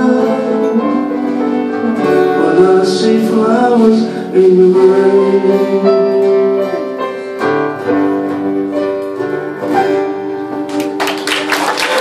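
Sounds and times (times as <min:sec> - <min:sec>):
live band playing chords: 0:00.0 - 0:12.0
audience applause: 0:10.7 - 0:12.0.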